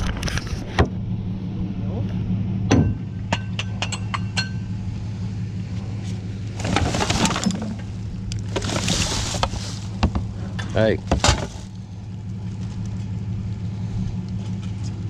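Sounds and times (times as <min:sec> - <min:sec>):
low engine hum: 0:00.0 - 0:15.0
scraping and rustling: 0:06.5 - 0:11.9
metal scrap clinking: 0:11.0 - 0:11.7.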